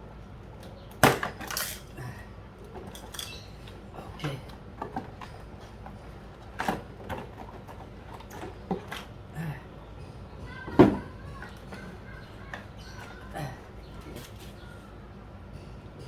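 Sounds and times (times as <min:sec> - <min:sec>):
hard plastic items clattering: 0:02.6 - 0:09.8.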